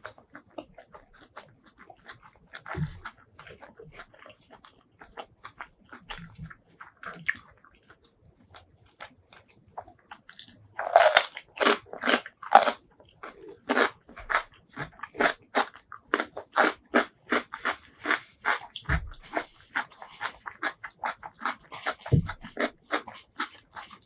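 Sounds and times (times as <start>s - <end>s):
wet chewing clicks: 0.0s - 24.0s
crunching bites: 10.2s - 24.0s.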